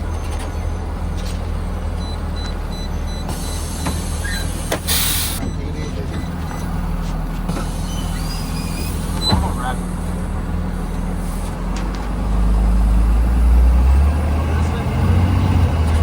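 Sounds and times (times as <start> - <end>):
bus engine drone: 0.0 - 16.0
air hiss: 3.4 - 5.4.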